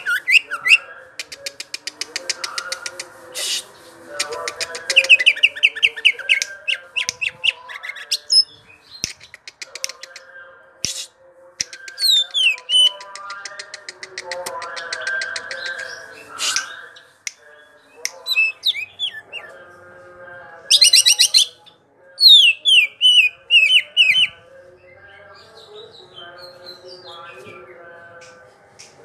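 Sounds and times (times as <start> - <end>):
leafbird singing: 0.0 - 0.9, 2.1 - 10.2, 10.9 - 13.2, 14.6 - 19.6, 20.7 - 27.5.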